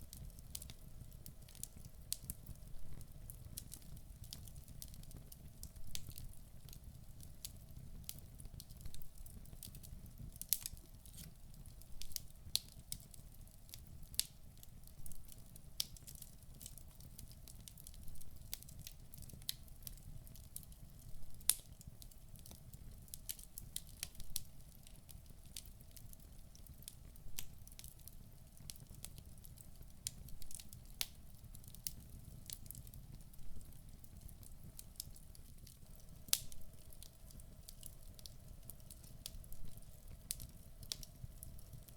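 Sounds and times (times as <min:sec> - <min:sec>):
logs crackling and popping: 0:00.1 - 0:20.7, 0:23.1 - 0:41.9
rumble of flames: 0:28.6 - 0:41.9.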